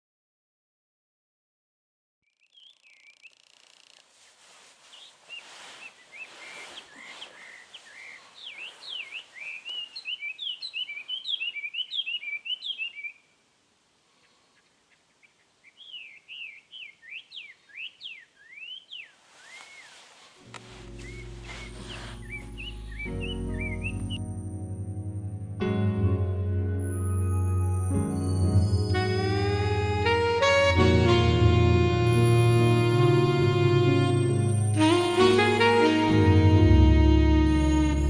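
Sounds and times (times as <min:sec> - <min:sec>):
songbird chirping and trilling: 0:02.2 - 0:13.4, 0:14.1 - 0:24.2.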